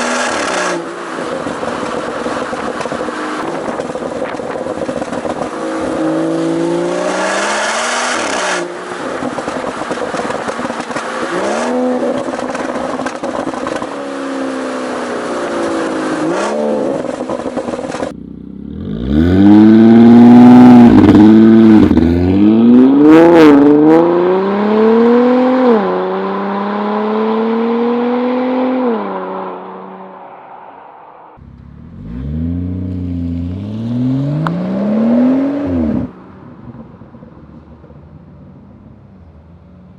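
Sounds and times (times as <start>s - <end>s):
sports car exhaust accelerating: 17.3s - 24.1s, 31.4s - 39.9s
car engine revving hard: 18.7s - 29.4s, 31.5s - 36.1s.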